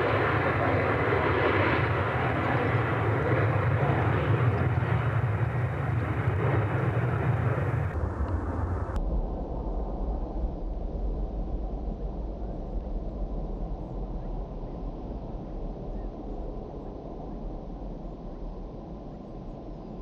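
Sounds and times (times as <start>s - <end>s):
jet engines running: 0.0s - 9.0s
low rumble: 0.0s - 19.5s.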